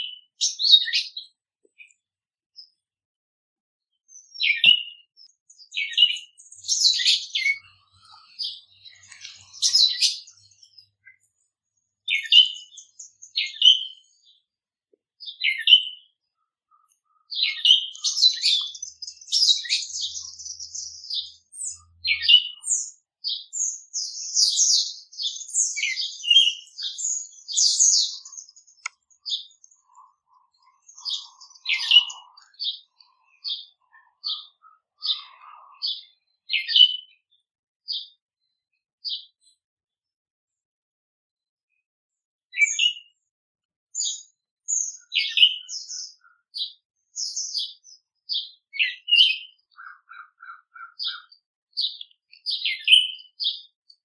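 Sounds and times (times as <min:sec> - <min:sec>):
small songbirds chirping: 0:00.0 - 0:03.0, 0:03.8 - 0:40.7, 0:41.7 - 0:54.0.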